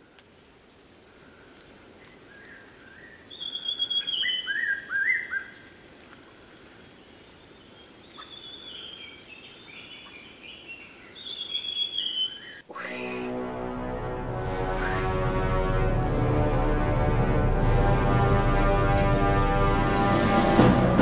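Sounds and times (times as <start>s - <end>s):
faint steady hiss: 0.0s - 20.0s
birds whistling calls: 2.3s - 5.6s, 7.3s - 13.3s.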